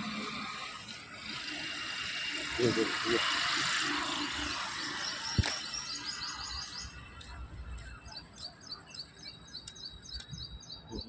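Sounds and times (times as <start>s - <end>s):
small bird chirping: 0.1s - 11.0s.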